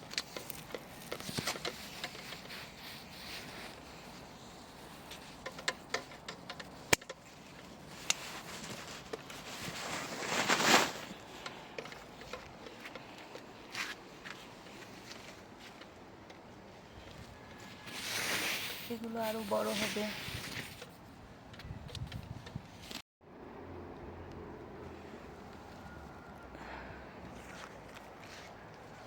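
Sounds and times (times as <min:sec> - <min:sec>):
leaves and stems rustling: 0:00.0 - 0:21.0.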